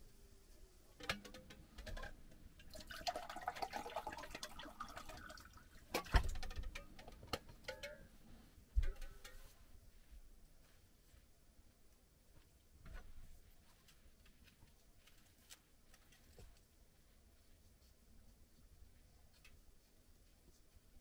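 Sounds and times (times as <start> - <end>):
clicks and knocks of handling: 1.0 - 2.7, 5.9 - 8.1
liquid pouring into container: 2.6 - 6.2.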